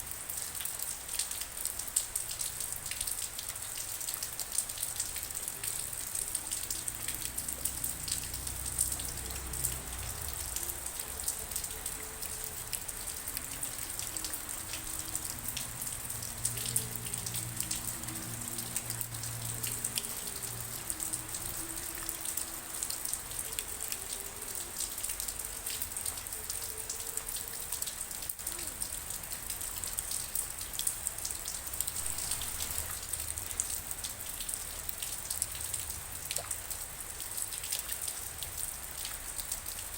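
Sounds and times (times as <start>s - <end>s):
rain drops pattering: 0.0s - 39.9s.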